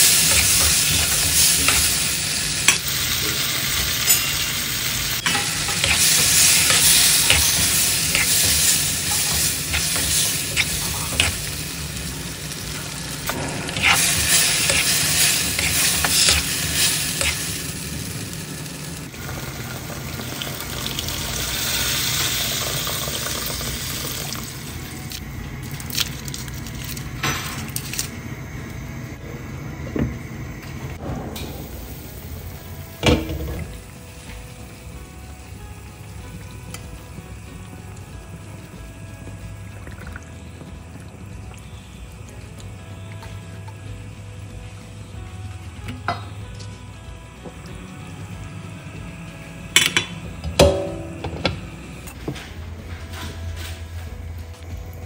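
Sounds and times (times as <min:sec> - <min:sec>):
food sizzling in oil: 0:00.0 - 0:25.3.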